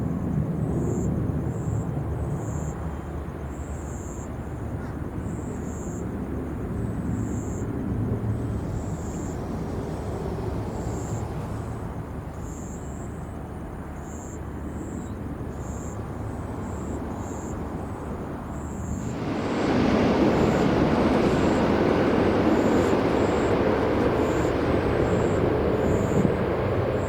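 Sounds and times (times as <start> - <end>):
jet engines rumbling: 17.6 - 27.0.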